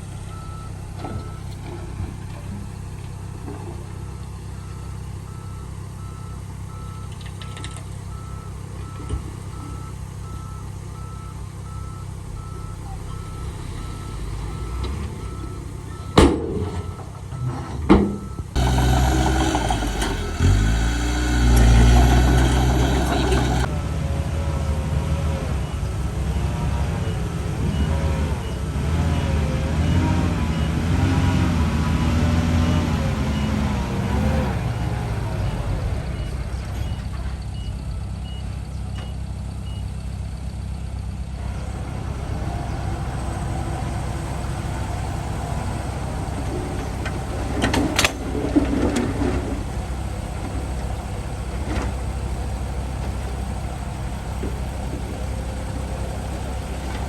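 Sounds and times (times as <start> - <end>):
heavy diesel machinery engine: 0.0 - 57.0
reversing alarm beeping: 0.2 - 1.5, 4.5 - 23.8.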